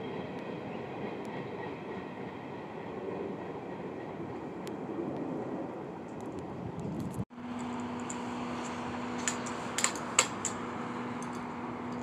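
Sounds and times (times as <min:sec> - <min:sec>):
freight cars rolling past: 0:07.4 - 0:12.0.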